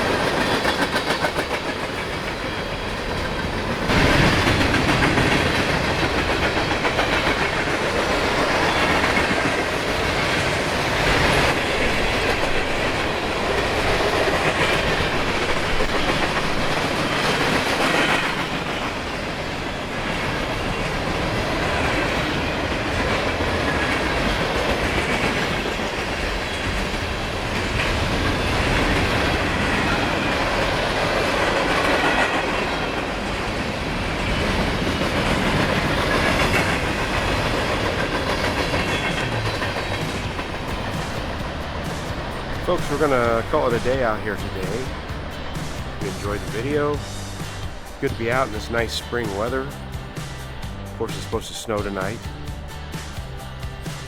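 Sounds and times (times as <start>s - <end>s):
freight train cars rolling: 0.0s - 54.0s.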